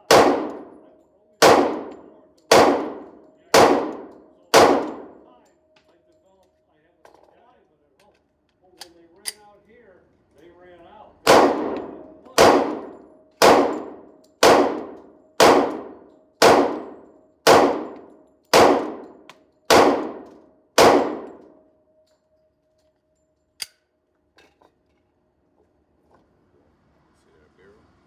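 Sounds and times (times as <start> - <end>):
handgun shots: 0.0 - 0.8, 1.4 - 5.2, 11.3 - 21.6
faint metallic ringing tone: 21.4 - 23.6.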